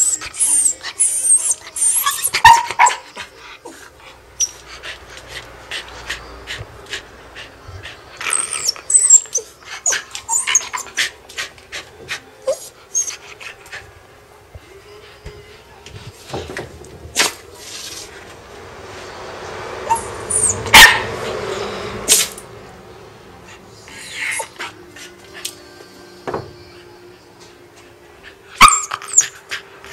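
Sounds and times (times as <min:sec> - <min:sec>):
dog whining: 0:00.0 - 0:11.2, 0:12.2 - 0:13.8, 0:19.8 - 0:21.0, 0:23.8 - 0:25.4, 0:28.6 - 0:29.9.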